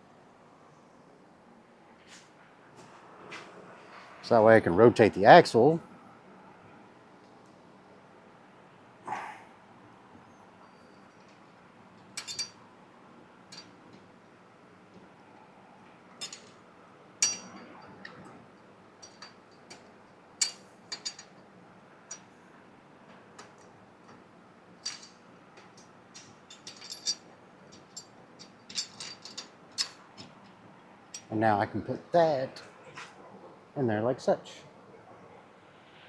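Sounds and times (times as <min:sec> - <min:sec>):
metallic clinks of steel parts: 0:10.6 - 0:12.6, 0:13.5 - 0:13.8, 0:16.2 - 0:16.6, 0:17.2 - 0:18.0, 0:19.0 - 0:21.4, 0:24.8 - 0:25.2, 0:25.8 - 0:31.3.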